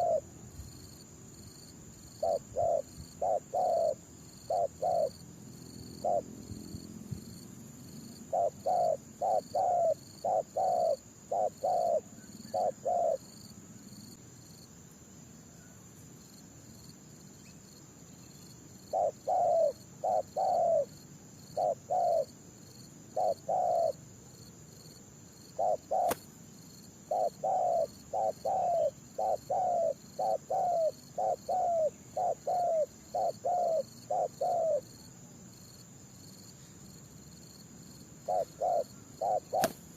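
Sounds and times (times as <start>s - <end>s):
doves cooing: 0.0s - 0.3s, 2.2s - 5.2s, 6.0s - 6.4s, 8.3s - 13.2s, 18.9s - 20.9s, 21.6s - 22.3s, 23.2s - 24.0s, 25.6s - 26.2s, 27.1s - 34.9s, 38.3s - 39.9s
high insect whine: 0.0s - 39.9s.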